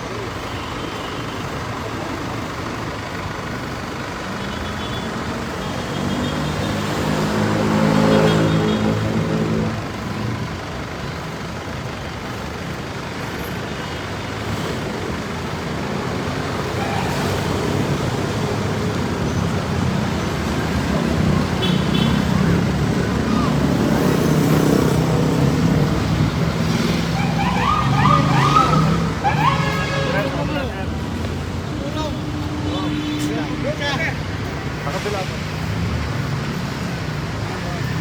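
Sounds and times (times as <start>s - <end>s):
road traffic noise: 0.0s - 38.0s
vehicle engine passing close: 16.8s - 31.7s.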